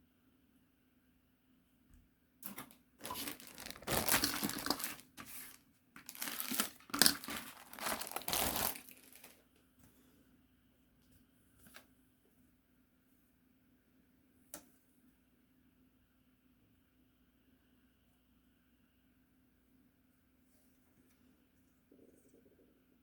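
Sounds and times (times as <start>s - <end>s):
packaging crinkling: 2.4s - 9.4s.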